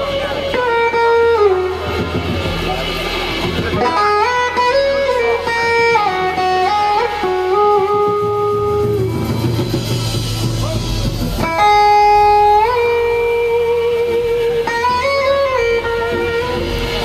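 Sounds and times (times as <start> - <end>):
bass and band backing: 0.0 - 17.0
electric guitar sliding melody: 0.0 - 17.0.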